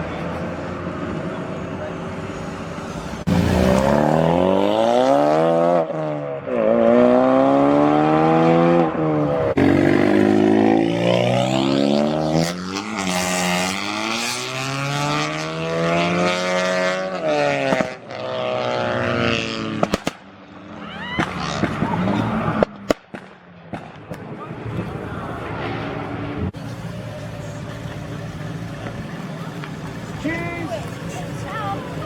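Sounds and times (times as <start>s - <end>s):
car engine accelerating through gears: 3.2s - 19.8s
sharp exhaust pop: 19.7s - 20.3s.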